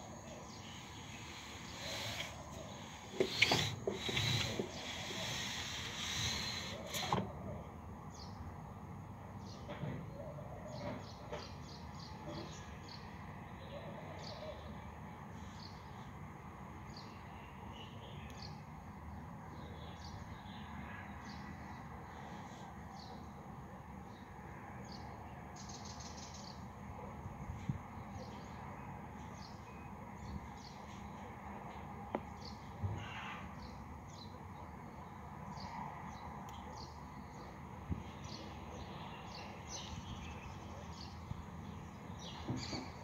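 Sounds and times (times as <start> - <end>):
small birds chirping: 0.0 - 7.2, 33.6 - 43.0.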